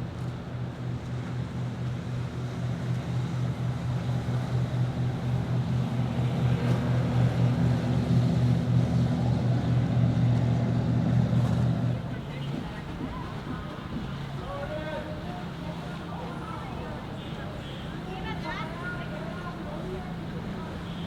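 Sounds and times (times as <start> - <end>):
motorboat engine humming: 0.0 - 21.0
water wash: 0.0 - 21.0
wind: 0.0 - 21.0.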